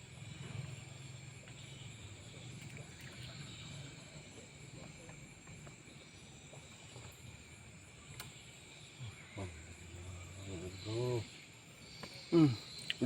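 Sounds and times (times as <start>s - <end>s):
crickets and insects chirring: 0.0s - 13.0s.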